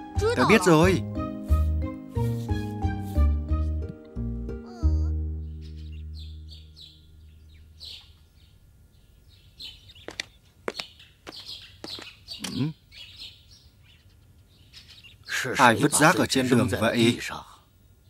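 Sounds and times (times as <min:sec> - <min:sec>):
music: 0:00.0 - 0:07.6
birds chirping and tweeting: 0:05.3 - 0:18.0.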